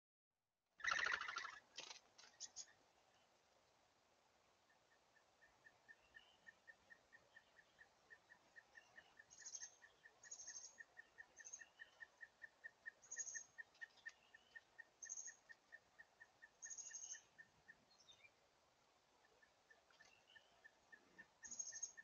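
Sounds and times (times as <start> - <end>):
higher bird chirps: 0.8 - 1.7, 4.6 - 18.4, 19.2 - 22.0
faint bird pips: 0.8 - 2.8, 5.6 - 18.4, 19.2 - 22.0.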